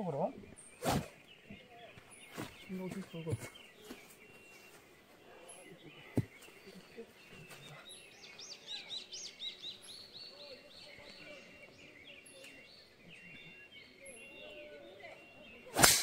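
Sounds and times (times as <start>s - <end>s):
faint birds singing: 0.0s - 16.0s.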